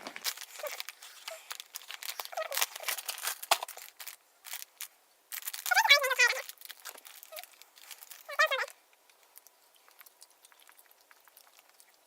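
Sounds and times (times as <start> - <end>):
person chewing: 9.2 - 12.0.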